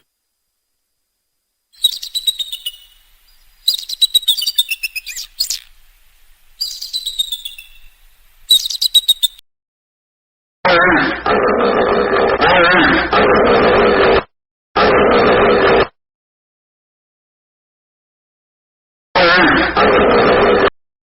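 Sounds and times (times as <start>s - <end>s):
songbird trilling: 1.8s - 5.8s, 6.6s - 9.4s.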